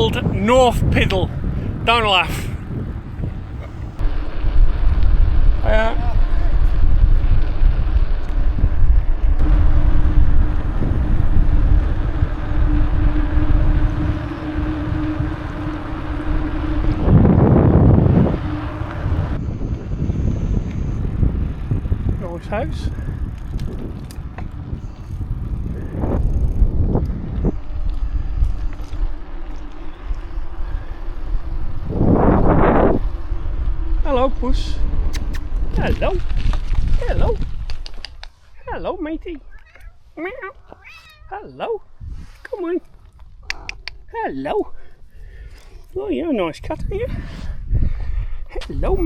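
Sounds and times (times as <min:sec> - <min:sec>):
steady low hum: 0:00.0 - 0:37.7
wind buffeting the microphone: 0:00.0 - 0:39.8, 0:41.8 - 0:49.0
bicycle road noise: 0:00.0 - 0:49.0.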